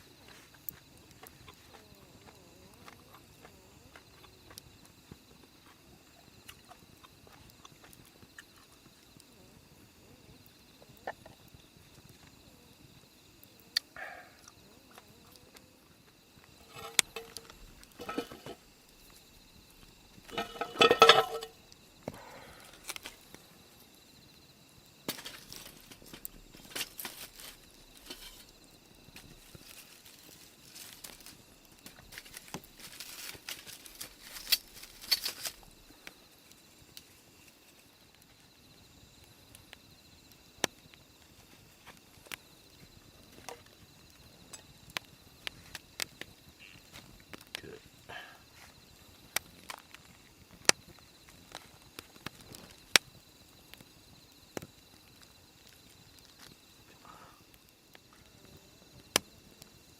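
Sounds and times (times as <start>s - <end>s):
small knocks: 16.6s - 18.6s, 20.2s - 21.6s.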